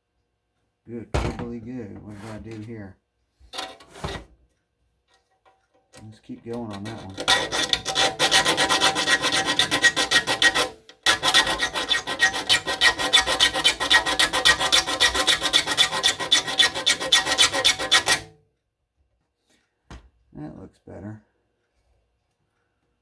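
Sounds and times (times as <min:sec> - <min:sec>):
file rasping on saw teeth: 0:06.6 - 0:18.3.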